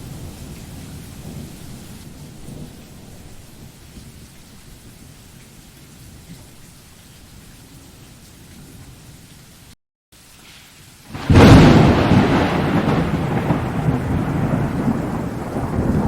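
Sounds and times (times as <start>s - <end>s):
rain hiss: 0.0s - 16.0s
thunder rumble: 11.1s - 16.0s.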